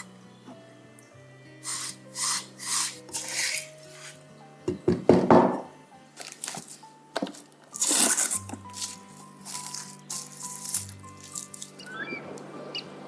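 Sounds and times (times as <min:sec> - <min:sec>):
soft background music: 0:00.0 - 0:13.0
utensils scraping dishes: 0:01.7 - 0:04.2
utensil knocking: 0:04.7 - 0:05.7.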